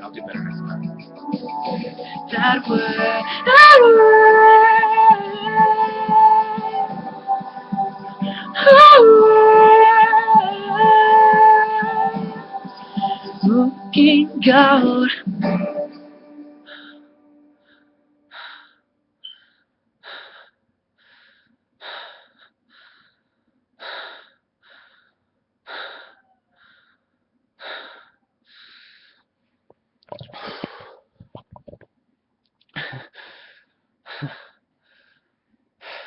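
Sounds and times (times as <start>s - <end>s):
man breathing hard: 16.6s - 29.3s, 30.2s - 31.2s, 32.7s - 36.0s.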